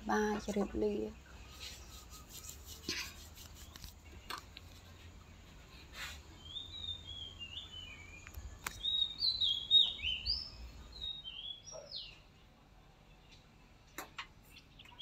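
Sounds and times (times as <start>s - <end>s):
songbird whistling: 6.4s - 12.1s.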